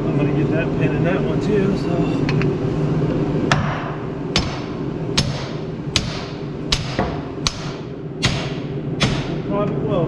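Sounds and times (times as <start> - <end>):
hammer striking steel pin: 4.4 - 9.4.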